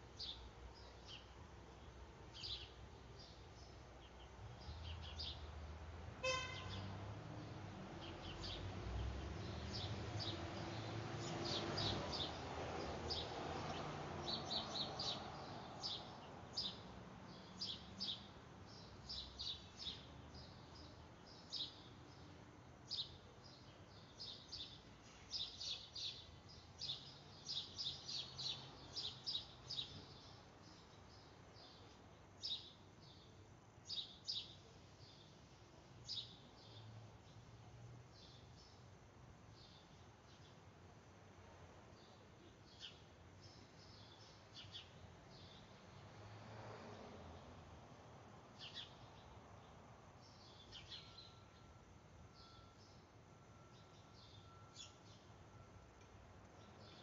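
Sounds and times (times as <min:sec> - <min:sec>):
small birds chirping: 0:00.0 - 0:05.5, 0:06.3 - 0:38.9, 0:42.0 - 0:45.9, 0:48.5 - 0:51.7, 0:52.4 - 0:55.6, 0:56.5 - 0:57.0.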